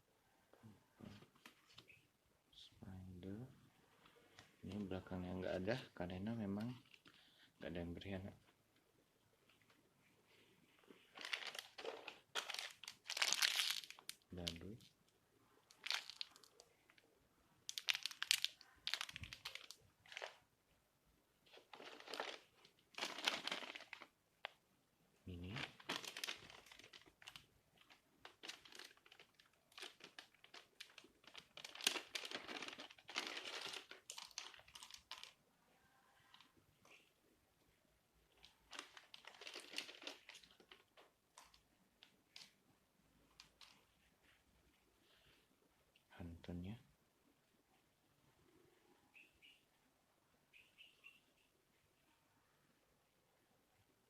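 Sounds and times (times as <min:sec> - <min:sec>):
plastic packaging rustling: 0:11.0 - 0:14.6, 0:15.7 - 0:17.0, 0:17.7 - 0:20.4, 0:21.5 - 0:24.6, 0:25.4 - 0:35.4, 0:38.3 - 0:41.6.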